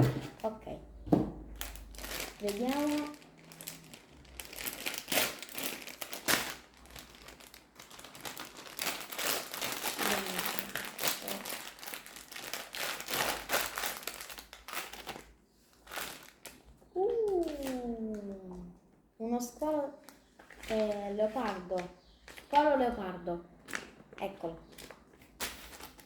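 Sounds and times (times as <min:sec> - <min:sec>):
wrapper crinkling: 0:01.5 - 0:18.4, 0:20.0 - 0:22.6, 0:23.6 - 0:26.0.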